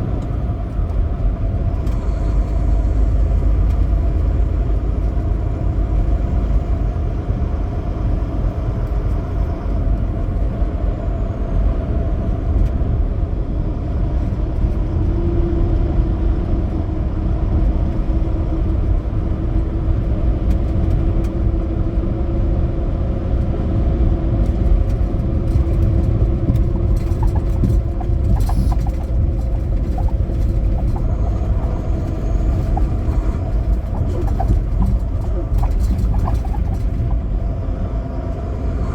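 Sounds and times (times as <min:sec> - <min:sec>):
truck engine and road rumble: 0:00.0 - 0:38.9
steady droning tone: 0:27.0 - 0:38.1.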